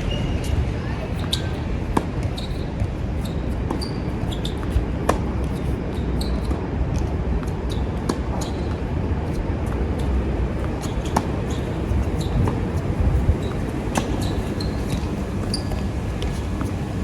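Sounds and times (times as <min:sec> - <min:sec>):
wind buffeting microphone: 0:00.0 - 0:17.0
tennis ball struck by rackets: 0:07.0 - 0:08.8, 0:09.6 - 0:12.6, 0:13.4 - 0:16.7.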